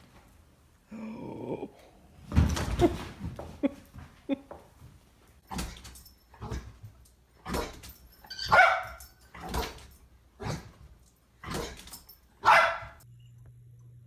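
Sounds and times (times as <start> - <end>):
dog barking: 8.5 - 9.1, 12.4 - 13.0.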